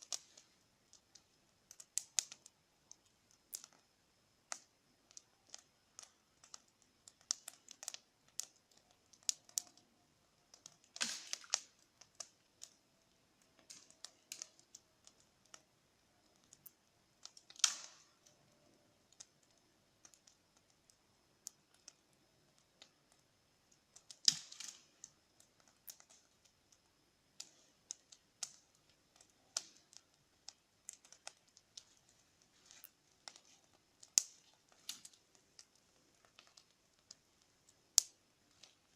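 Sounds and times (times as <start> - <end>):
bonfire crackling: 0.0 - 38.9
loud fire cracks: 16.5 - 18.5, 24.0 - 25.1, 27.4 - 38.7.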